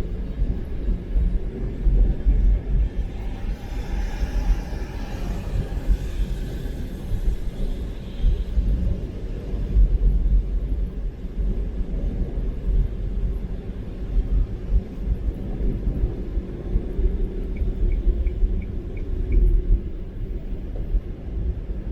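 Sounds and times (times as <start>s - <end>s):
car road and engine rumble: 0.0s - 21.9s
faint ticks: 17.5s - 19.7s.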